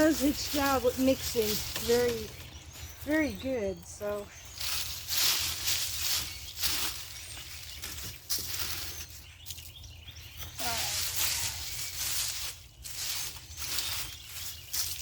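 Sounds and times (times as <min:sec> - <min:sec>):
hoe scraping through soil: 0:00.0 - 0:03.7.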